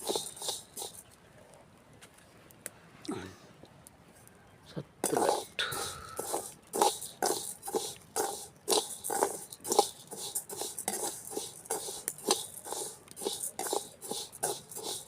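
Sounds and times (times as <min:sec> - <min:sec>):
rice stirred in a pan: 0:00.0 - 0:01.1, 0:05.0 - 0:15.0.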